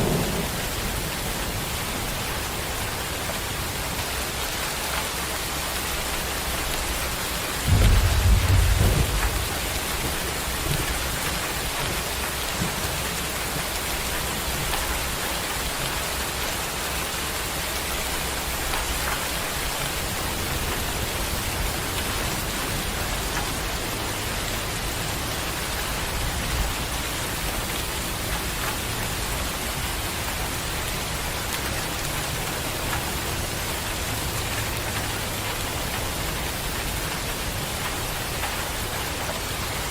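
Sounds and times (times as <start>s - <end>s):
thunder rumbling: 0.0s - 3.1s, 7.6s - 12.8s
heavy rain hissing: 0.0s - 39.9s.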